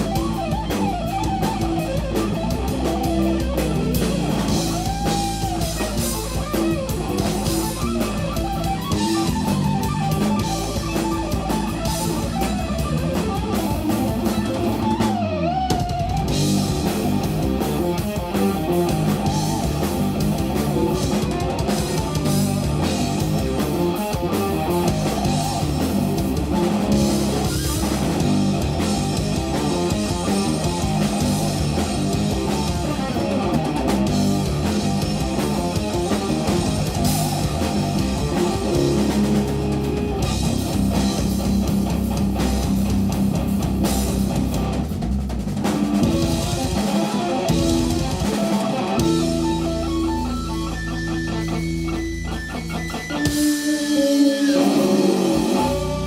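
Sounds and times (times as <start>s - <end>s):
bass guitar: 0.0s - 56.0s
busy drum kit: 0.0s - 56.0s
electric guitar: 0.0s - 56.0s.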